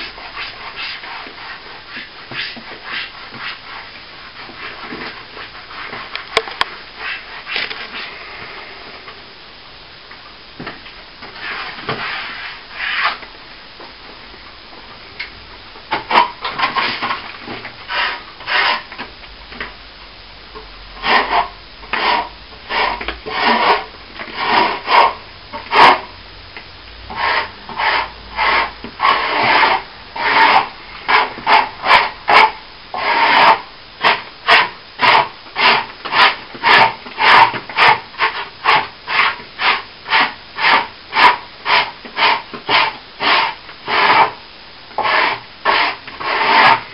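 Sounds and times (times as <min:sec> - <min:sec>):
abrasive rubbing on plaster wall: 0:00.0 - 0:06.1, 0:11.3 - 0:13.2, 0:16.0 - 0:19.0, 0:21.0 - 0:26.1, 0:27.1 - 0:44.4, 0:45.0 - 0:46.9.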